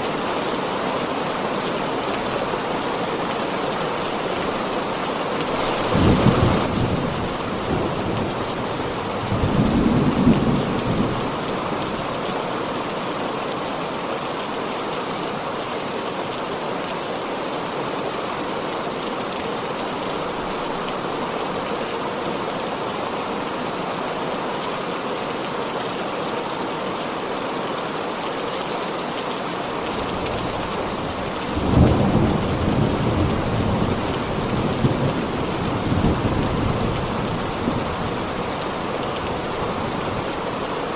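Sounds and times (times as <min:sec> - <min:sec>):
heavy rain pouring: 0:00.0 - 0:40.9
thunder rumbling: 0:30.0 - 0:40.4.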